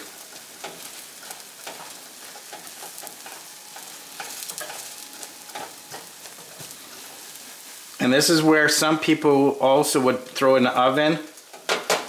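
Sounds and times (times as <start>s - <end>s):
utensil scraping pan: 0.0s - 7.4s
omelette sizzling in oil: 0.0s - 12.0s.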